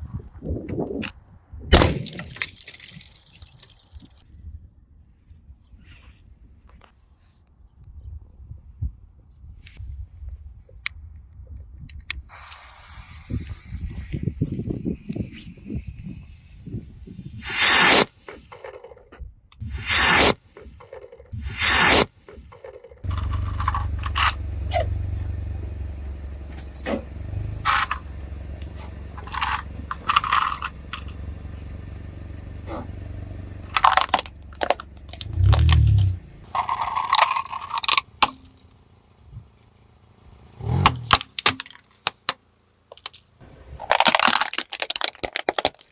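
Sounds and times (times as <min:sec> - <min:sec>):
car low rumble: 0:13.0 - 0:17.5, 0:18.1 - 0:45.7
plastic cracking under car tyres: 0:33.7 - 0:38.4, 0:41.1 - 0:45.9.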